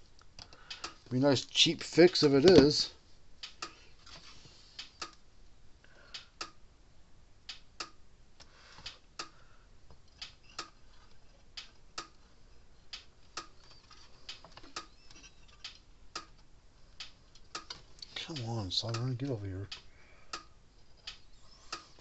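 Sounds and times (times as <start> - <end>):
light sharp clicks and taps: 0.1 - 1.1.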